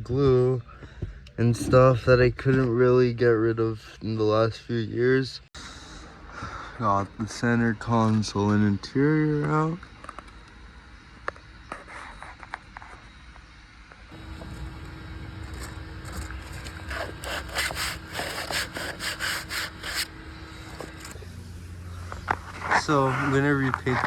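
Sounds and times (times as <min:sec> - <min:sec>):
hand scrubbing car panel: 0:15.4 - 0:21.2.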